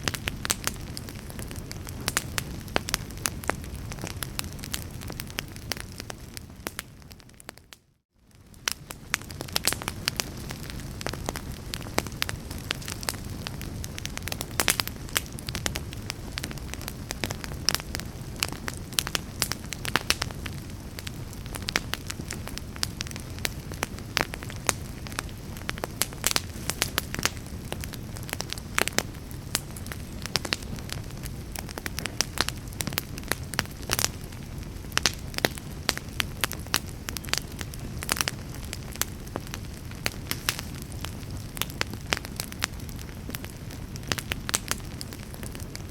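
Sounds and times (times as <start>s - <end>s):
fire crackling and popping: 0.0s - 45.9s.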